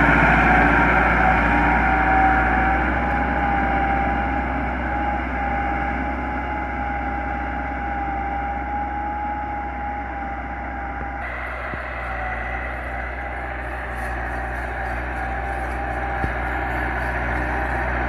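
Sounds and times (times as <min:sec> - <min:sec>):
tractor diesel engine running: 0:00.0 - 0:18.0
steady high whine: 0:11.0 - 0:18.0.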